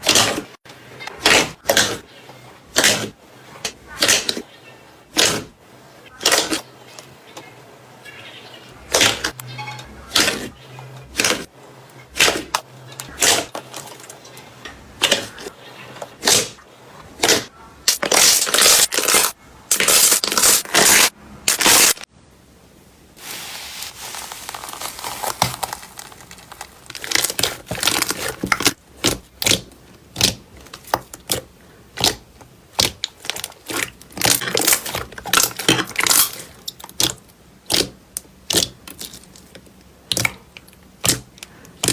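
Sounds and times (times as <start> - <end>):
slime popping and crackling: 17.2 - 22.0, 23.8 - 31.4, 32.0 - 41.9.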